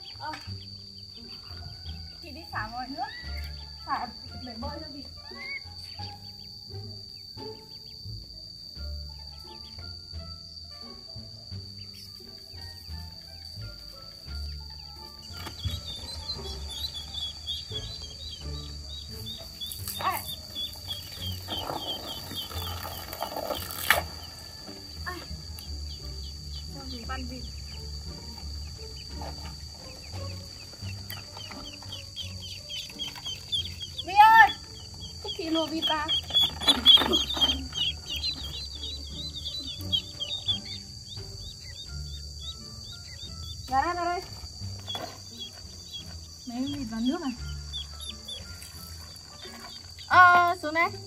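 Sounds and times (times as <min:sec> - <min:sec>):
ducklings peeping: 0:04.4 - 0:08.0, 0:11.7 - 0:50.9
hose water splashing on tarp: 0:21.3 - 0:24.2.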